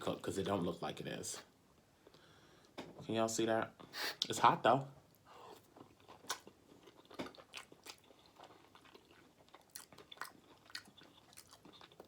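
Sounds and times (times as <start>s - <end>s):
person chewing food: 5.4s - 12.0s.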